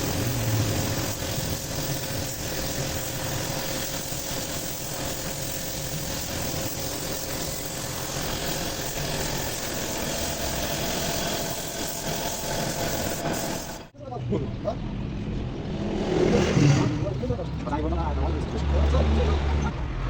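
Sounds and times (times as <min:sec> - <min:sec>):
motor humming: 0:00.0 - 0:13.9.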